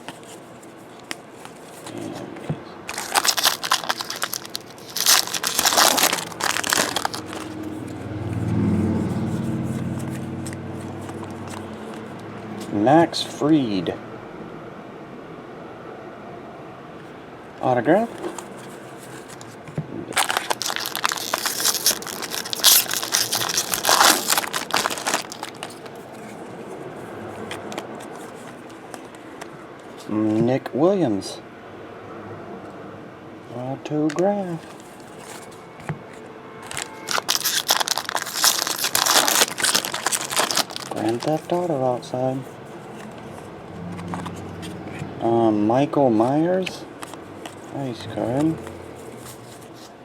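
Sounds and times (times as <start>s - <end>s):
foil wrapper crinkling: 2.9s - 7.7s, 20.2s - 26.3s, 36.6s - 41.7s
vehicle engine hum: 2.9s - 12.8s, 36.6s - 45.4s.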